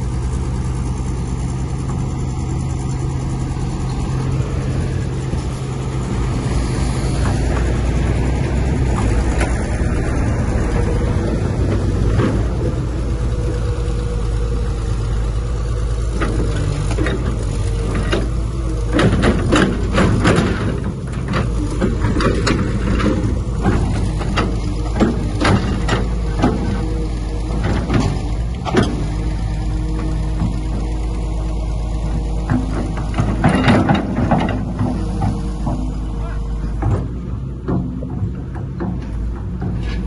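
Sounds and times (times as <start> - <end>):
heavy diesel machinery running: 0.0 - 40.0
metallic clanks and knocks: 7.1 - 14.2, 16.1 - 29.2, 32.0 - 40.0.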